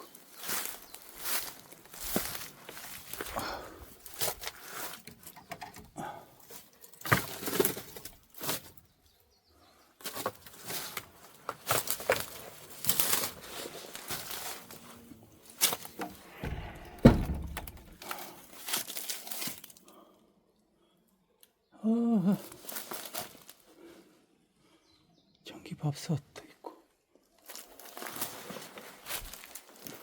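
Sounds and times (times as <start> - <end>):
rustling in dry leaves and debris: 0.0 - 5.4, 6.4 - 8.9, 10.0 - 20.0, 22.4 - 23.9, 27.4 - 30.0
knocks: 16.0 - 18.0
heavy thump: 16.0 - 18.1.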